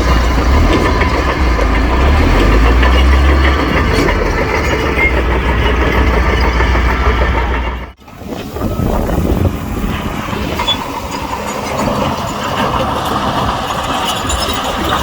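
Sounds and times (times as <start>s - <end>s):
heavy diesel machinery rumbling: 0.0s - 15.0s.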